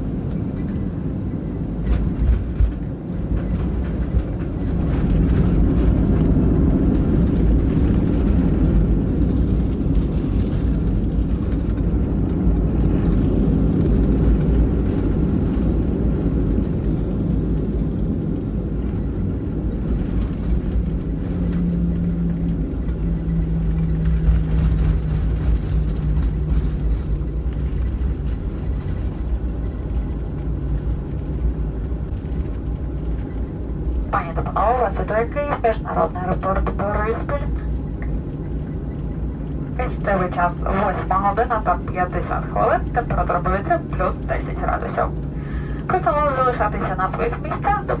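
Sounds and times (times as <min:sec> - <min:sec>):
jet engines rumbling: 0:00.0 - 0:48.0
steady hum: 0:19.0 - 0:48.0.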